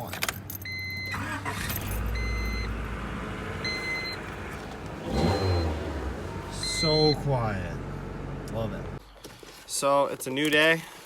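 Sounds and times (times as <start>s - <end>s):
car warning chime beeping: 0.6s - 2.8s, 3.6s - 4.4s, 5.0s - 7.6s
car engine idling: 1.2s - 9.0s.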